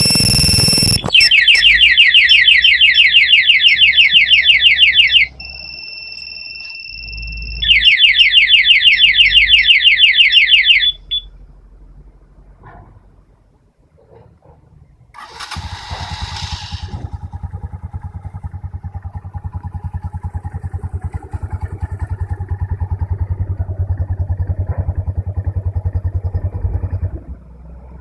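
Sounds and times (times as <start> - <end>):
motorcycle engine starting and idling: 0.0 - 5.6, 15.1 - 28.0.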